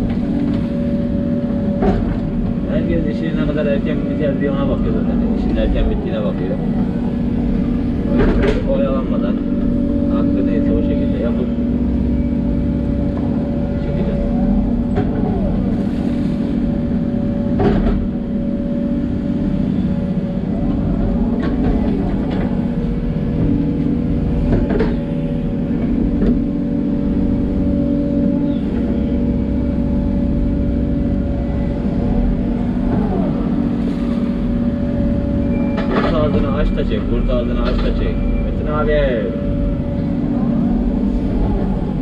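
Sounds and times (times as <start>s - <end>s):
excavator diesel engine running: 0.0s - 42.0s
excavator knocks: 8.1s - 8.7s.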